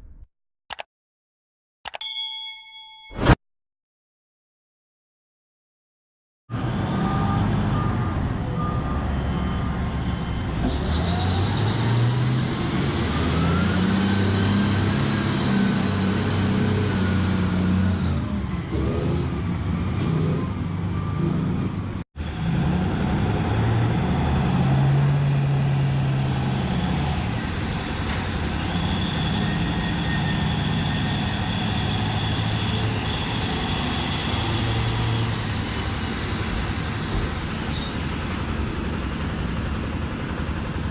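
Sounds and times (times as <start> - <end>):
haul truck engine running: 35.3 - 40.9.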